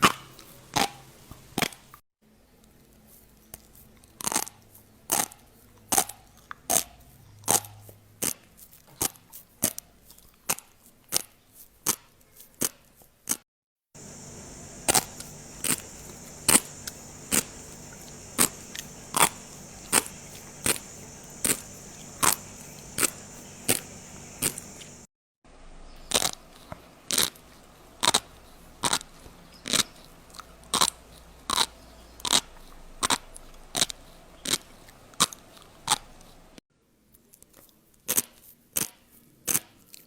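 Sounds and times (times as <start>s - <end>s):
fish roe popping: 14.0s - 25.0s
steady hiss: 14.0s - 25.1s.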